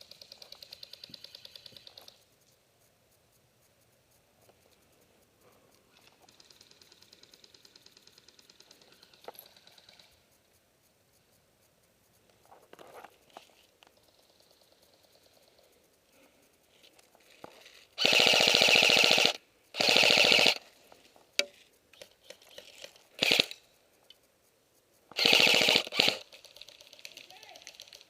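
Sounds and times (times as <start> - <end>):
airsoft gun full-auto bursts: 0.0 - 2.2, 6.0 - 10.1, 17.3 - 20.8, 22.0 - 23.6, 25.1 - 28.0.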